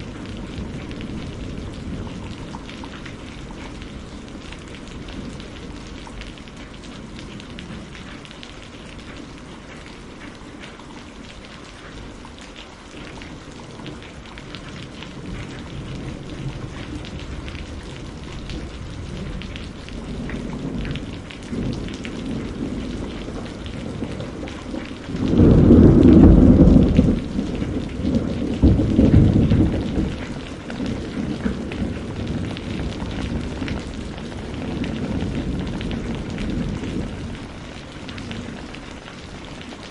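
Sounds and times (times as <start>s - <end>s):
thunder rumbling: 0.0s - 8.2s, 13.1s - 39.9s
steady rain falling: 0.0s - 39.9s
loud thunder clap: 23.9s - 37.4s.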